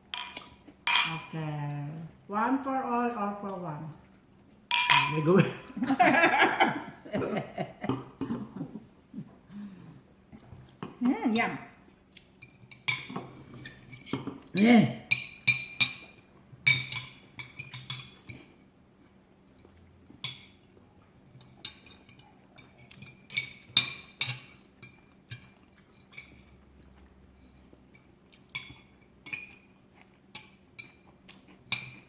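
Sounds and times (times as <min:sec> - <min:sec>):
cutlery clinking on plates: 0:00.1 - 0:01.3, 0:04.7 - 0:05.4, 0:12.4 - 0:18.5, 0:21.4 - 0:26.6, 0:28.4 - 0:32.0.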